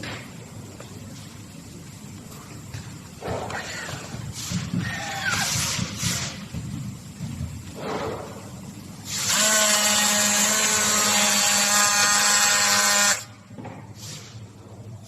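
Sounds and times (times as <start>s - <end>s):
small electric motor whirring: 9.1s - 13.2s.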